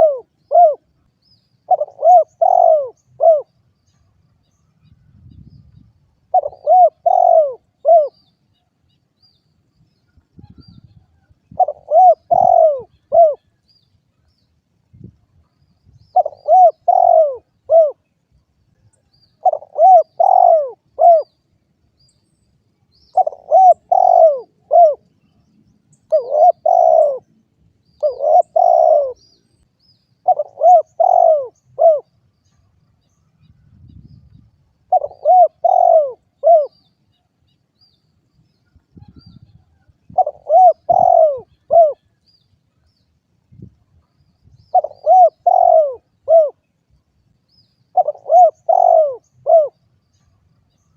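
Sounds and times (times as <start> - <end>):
dove cooing: 0.0 - 0.9, 1.6 - 3.5, 6.3 - 8.2, 11.5 - 13.5, 16.1 - 18.1, 19.4 - 21.4, 23.1 - 25.0, 26.1 - 27.3, 28.0 - 29.3, 30.2 - 32.2, 34.9 - 36.8, 39.0 - 42.2, 44.7 - 46.6, 47.9 - 49.8.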